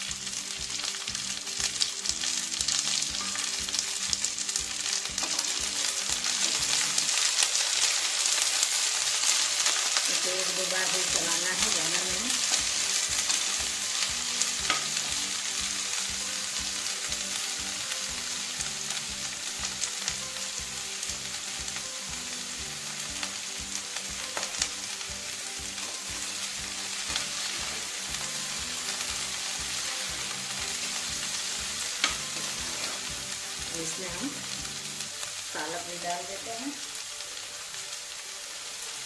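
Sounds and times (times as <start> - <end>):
vegetables sizzling in hot fat: 0.0 - 39.0
spatula scraping a pan: 5.2 - 6.8, 32.0 - 33.1.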